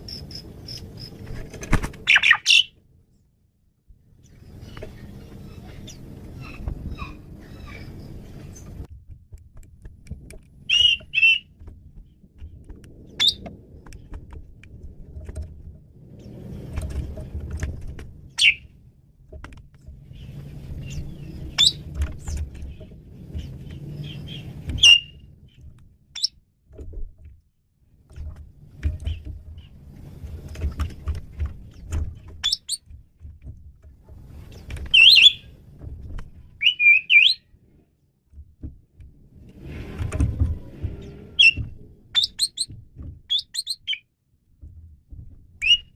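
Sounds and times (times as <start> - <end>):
low rumbling background noise: 0.0 - 45.9
starling whistles and chirps: 2.1 - 2.7, 10.7 - 11.5, 13.1 - 13.4, 18.4 - 18.6, 20.2 - 21.9, 24.0 - 25.2, 34.9 - 35.5, 36.6 - 37.5, 41.0 - 41.6, 42.2 - 42.7, 43.3 - 44.0, 45.6 - 45.9.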